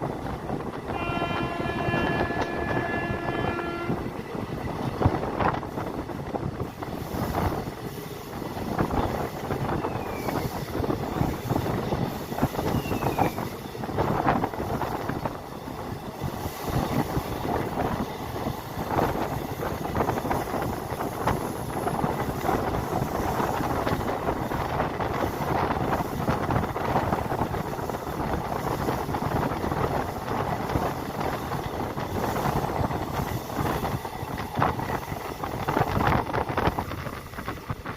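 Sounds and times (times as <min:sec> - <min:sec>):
train carriage rumble and rattle: 0:00.0 - 0:37.9.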